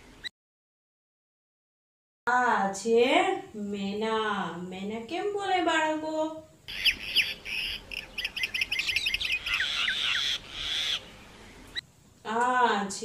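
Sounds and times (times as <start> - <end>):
myna whistling and chattering: 6.7 - 11.1.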